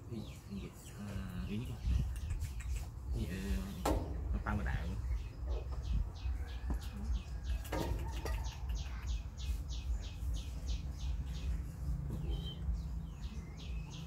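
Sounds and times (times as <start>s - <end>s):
bird chirping: 0.1s - 14.0s.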